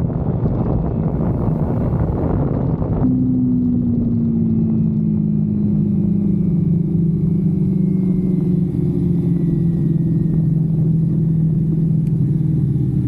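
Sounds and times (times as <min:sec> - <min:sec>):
motorcycle engine slowing: 0:00.0 - 0:13.0.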